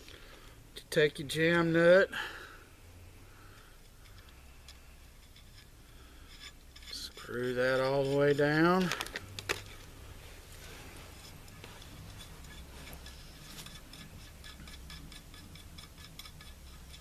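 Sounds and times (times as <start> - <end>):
low hum: 9.2 - 17.0
nut clicking on metal threads: 11.5 - 17.0.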